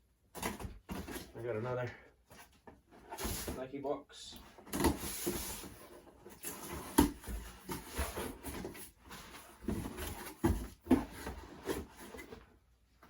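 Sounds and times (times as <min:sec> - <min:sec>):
knocks and thuds on cardboard box: 0:04.5 - 0:12.3.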